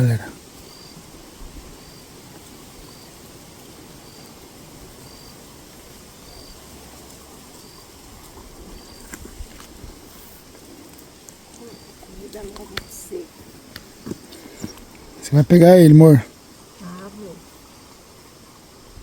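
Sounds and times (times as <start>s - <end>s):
wind noise: 8.0s - 10.4s
faint high chirp: 11.6s - 13.1s.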